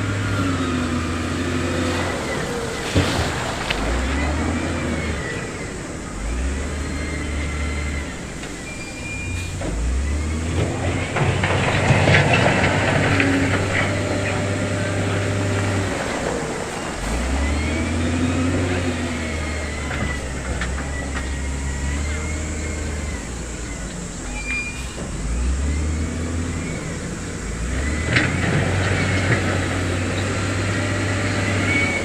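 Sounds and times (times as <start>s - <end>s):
diesel machinery engine revving: 0.0s - 32.0s
metal clanks and rattles: 9.4s - 17.4s.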